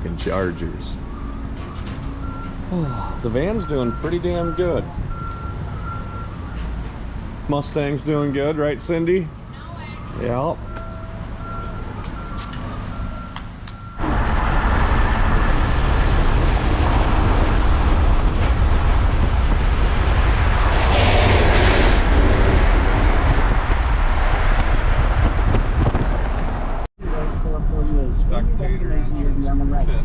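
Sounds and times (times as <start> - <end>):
road rumble: 0.0 - 30.0
wind and road noise: 0.0 - 30.0
vehicle warning chime beeping: 1.1 - 6.7, 8.0 - 14.1.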